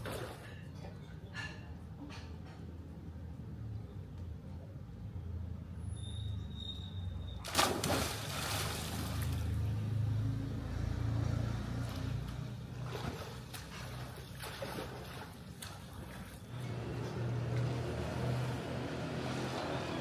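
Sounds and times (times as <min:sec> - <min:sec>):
low steady hum: 0:07.4 - 0:19.8
pool water splashing: 0:07.4 - 0:20.0.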